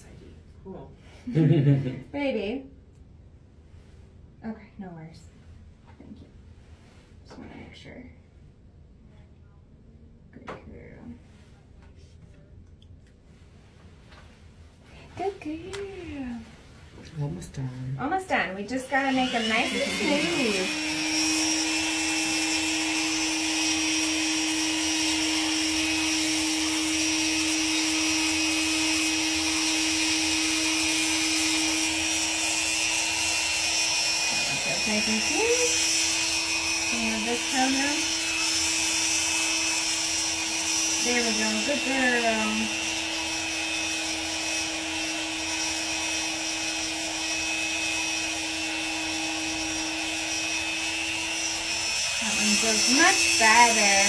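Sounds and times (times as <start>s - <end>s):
rotary tool whining: 18.7s - 54.0s.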